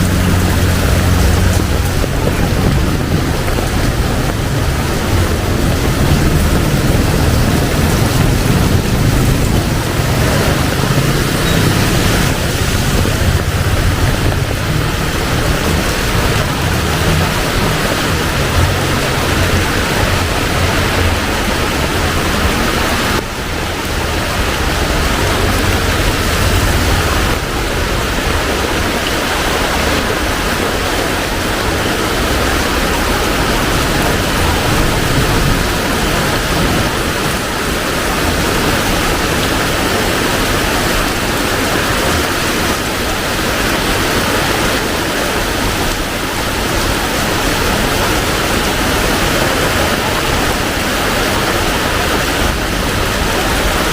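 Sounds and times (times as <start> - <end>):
low rumble: 0.0 - 29.1
heavy rain pouring: 0.0 - 53.9.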